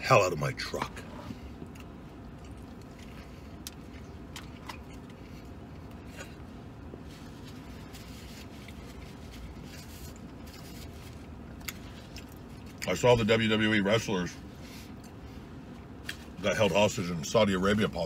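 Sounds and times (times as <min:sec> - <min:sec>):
low steady rumble in truck cab: 0:00.0 - 0:18.0
man chewing: 0:01.0 - 0:12.9.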